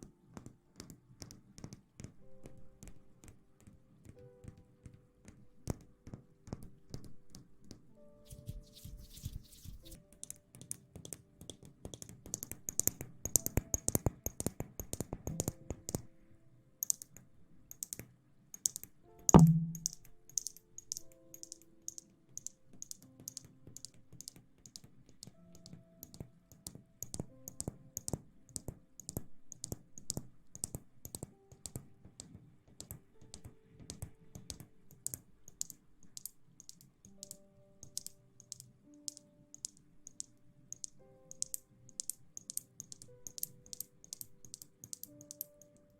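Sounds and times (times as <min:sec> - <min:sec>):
faint background music: 0:00.0 - 0:45.9
loud thump: 0:19.4 - 0:19.9
rapid light tapping: 0:19.4 - 0:22.0
crackling clicks: 0:33.3 - 0:45.9.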